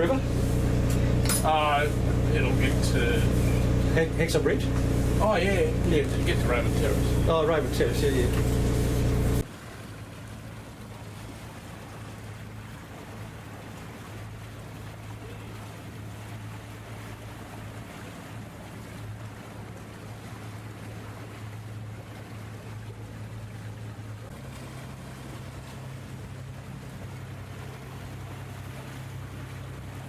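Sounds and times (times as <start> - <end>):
boat engine droning: 0.0 - 30.0
water hissing around hull: 0.0 - 30.0.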